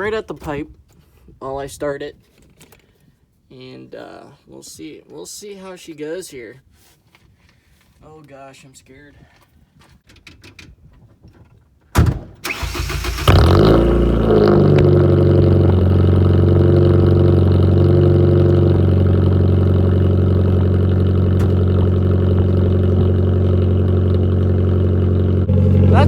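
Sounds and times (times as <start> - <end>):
starter motor cranking: 12.4 - 13.8
loud car engine idling: 13.3 - 26.0.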